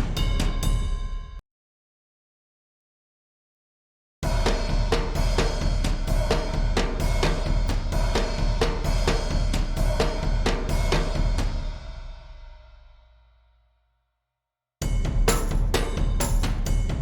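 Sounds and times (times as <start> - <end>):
rhythmic sampled percussion: 0.0 - 1.3, 4.3 - 12.1, 14.8 - 17.0.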